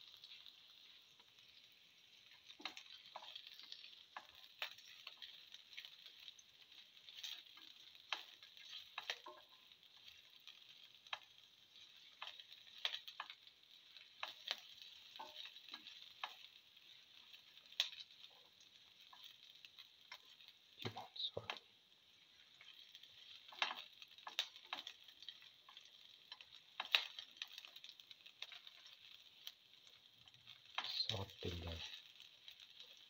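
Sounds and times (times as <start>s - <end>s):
garlic frying in oil: 0.0s - 33.0s
spatula scraping and tapping pan: 2.3s - 21.6s, 22.5s - 29.5s.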